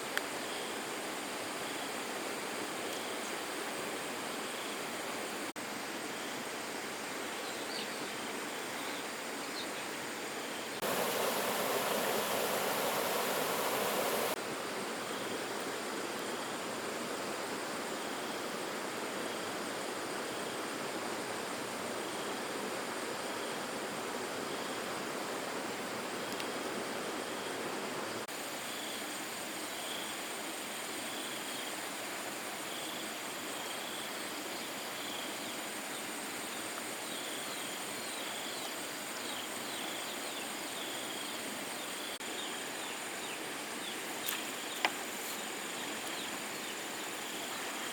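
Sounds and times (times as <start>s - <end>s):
insects chirping and buzzing: 8.6s - 15.6s, 21.4s - 47.9s
running water: 10.8s - 14.4s.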